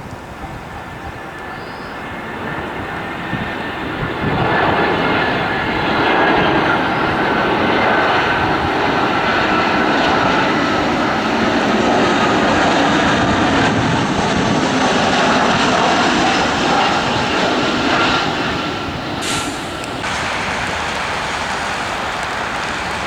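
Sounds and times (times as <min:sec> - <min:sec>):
airliner engines rushing: 0:00.0 - 0:23.0
thin steady whine: 0:17.8 - 0:23.0.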